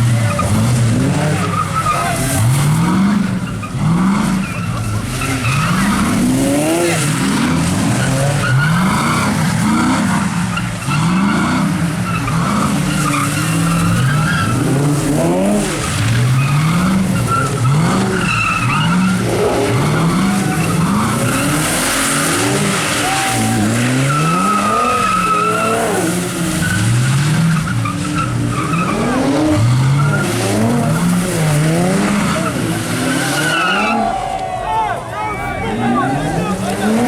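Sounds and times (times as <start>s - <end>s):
car engine revving: 0.0s - 34.4s, 35.2s - 37.0s
tyres skidding: 0.0s - 37.0s.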